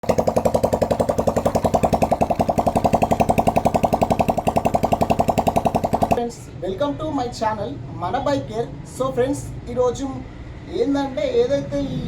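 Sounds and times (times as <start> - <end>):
motorcycle engine idling: 0.0 - 6.2.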